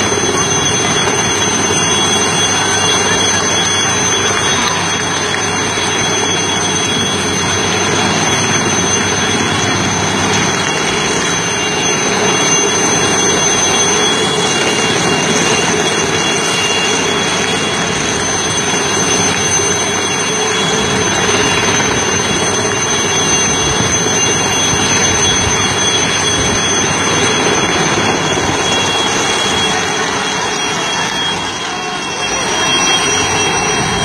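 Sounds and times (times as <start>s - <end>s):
loud engine drone: 0.0s - 34.0s.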